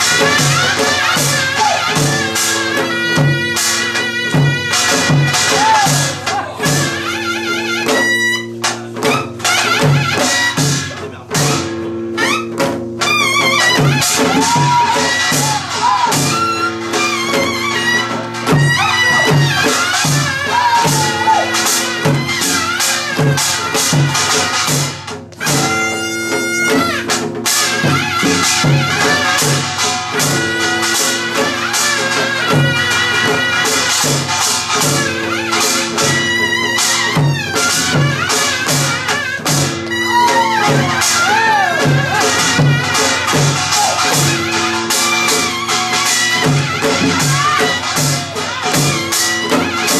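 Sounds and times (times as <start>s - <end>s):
metallic percussion strikes: 0.0s - 49.9s
sliding melody line: 0.0s - 49.9s
steady drum beat: 0.0s - 49.9s.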